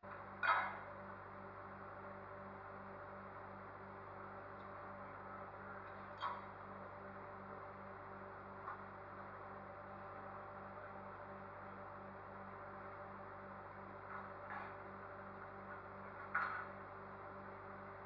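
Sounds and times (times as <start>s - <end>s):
pulsing electrical hum: 0.0s - 18.0s.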